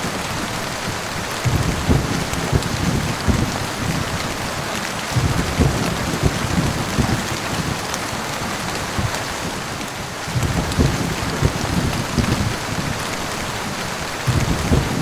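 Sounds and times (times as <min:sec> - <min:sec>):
heavy rain falling: 0:00.0 - 0:15.0
thunder rumbling: 0:00.0 - 0:15.0.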